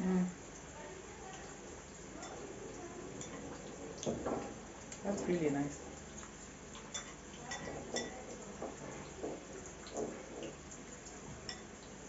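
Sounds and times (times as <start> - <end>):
soft chewing: 1.2 - 12.0
spoon clinking against bowl: 6.8 - 8.2, 11.5 - 11.7.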